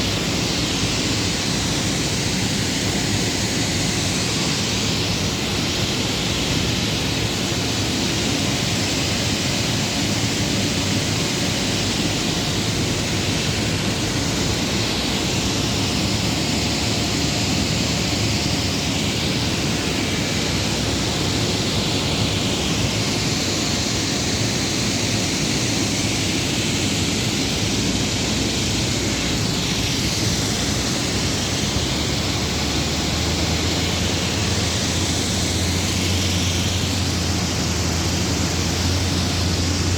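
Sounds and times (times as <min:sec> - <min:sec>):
large air fans rushing: 0:00.0 - 0:39.9.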